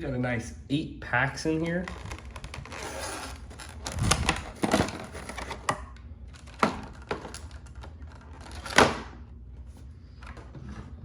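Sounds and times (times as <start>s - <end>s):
cardboard rustle: 1.9s - 5.7s.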